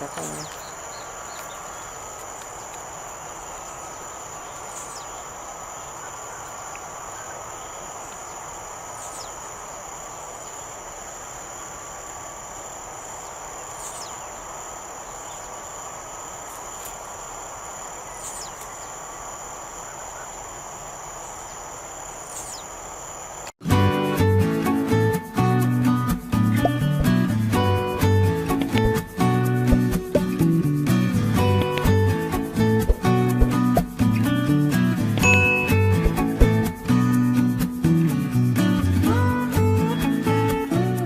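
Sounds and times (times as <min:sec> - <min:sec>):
high insect drone: 0:00.0 - 0:23.6.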